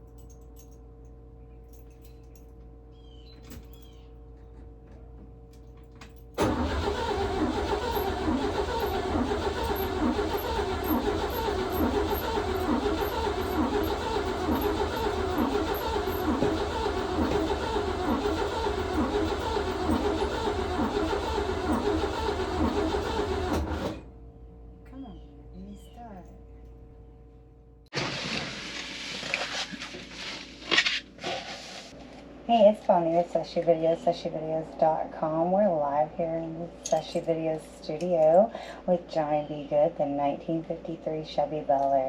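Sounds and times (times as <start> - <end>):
engine cranking by starter: 6.4 - 24.2.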